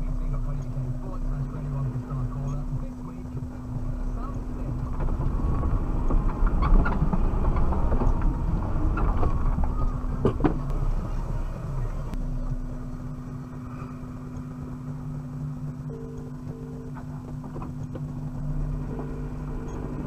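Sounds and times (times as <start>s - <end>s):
car engine running loud: 0.0s - 20.0s
knocks and rattles: 4.7s - 10.7s.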